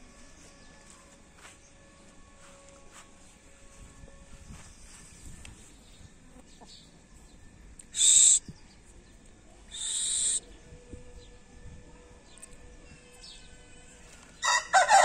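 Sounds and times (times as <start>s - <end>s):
shrill bird calls: 7.9s - 8.6s, 9.7s - 10.6s.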